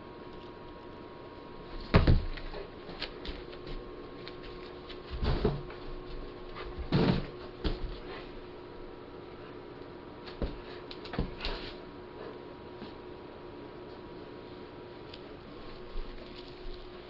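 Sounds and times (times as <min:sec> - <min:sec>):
dog's paws scrabbling on floor: 0:01.6 - 0:08.3, 0:10.2 - 0:11.9, 0:15.0 - 0:17.0.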